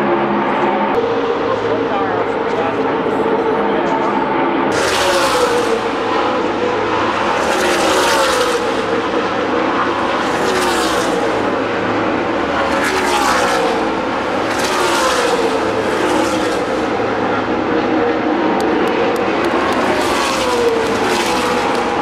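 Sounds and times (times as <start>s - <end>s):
race cars passing at speed: 0.0s - 22.0s.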